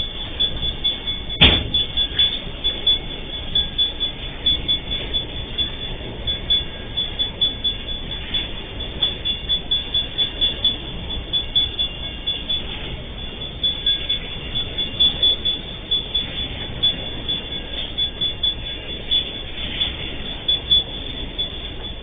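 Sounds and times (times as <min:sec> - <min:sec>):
high ringing wheel squeal: 0:00.0 - 0:22.0
sharp bang: 0:01.4 - 0:01.8.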